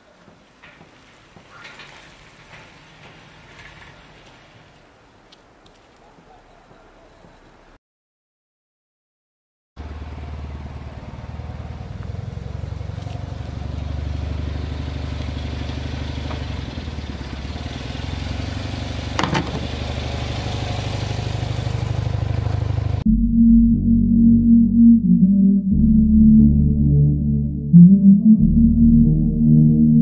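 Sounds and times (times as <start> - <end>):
car engine running at low revs: 9.8 - 23.3.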